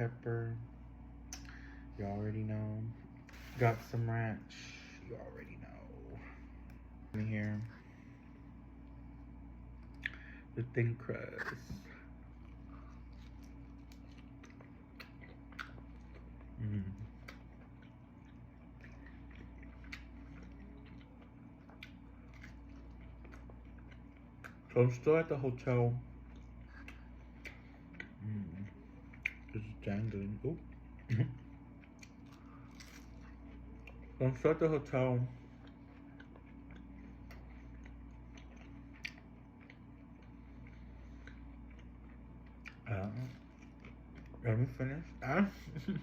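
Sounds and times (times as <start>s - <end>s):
low room hum: 0.0s - 46.0s
faint chewing: 11.4s - 24.7s, 26.2s - 34.4s, 35.3s - 46.0s.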